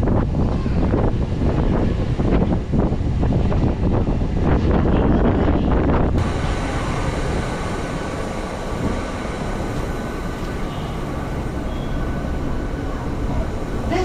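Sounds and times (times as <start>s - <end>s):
train carriage rumbling: 0.0s - 14.0s
faint steady whine: 6.2s - 14.0s.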